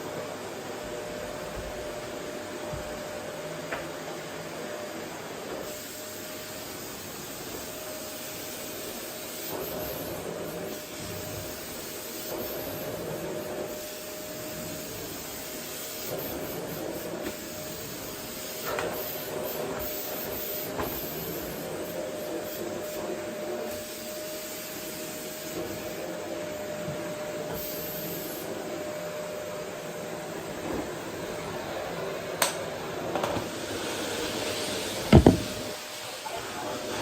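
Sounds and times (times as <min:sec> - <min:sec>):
vacuum cleaner running: 0:00.0 - 0:37.0
light knocks: 0:35.1 - 0:35.6.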